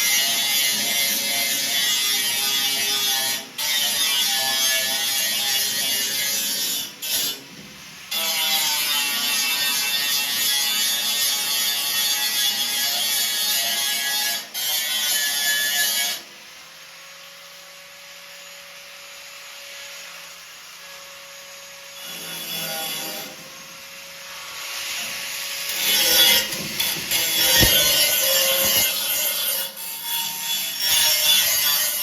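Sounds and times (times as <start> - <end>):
power grinder grinding steel: 20.8 - 32.0.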